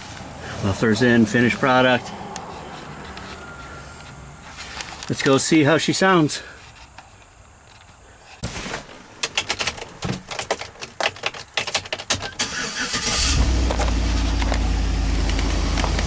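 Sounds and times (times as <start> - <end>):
clicks and knocks: 9.2 - 12.4
truck engine starting and idling: 12.1 - 16.0.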